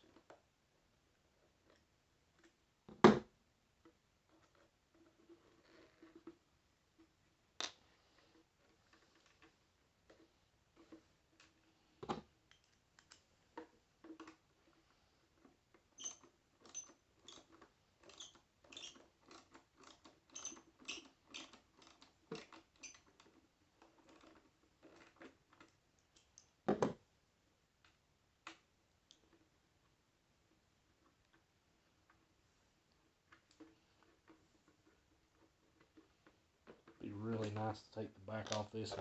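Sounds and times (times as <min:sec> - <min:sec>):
plastic toy clicks and ticks: 0:15.9 - 0:24.4
thin high squeak: 0:16.0 - 0:17.5, 0:18.1 - 0:19.0, 0:20.3 - 0:21.5, 0:22.8 - 0:23.1.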